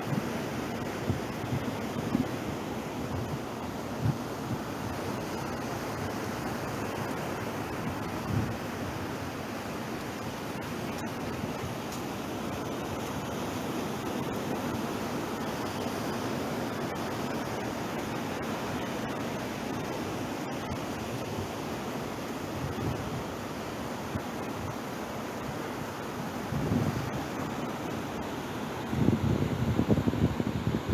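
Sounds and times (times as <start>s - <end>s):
wind buffeting microphone: 28.9s - 30.9s.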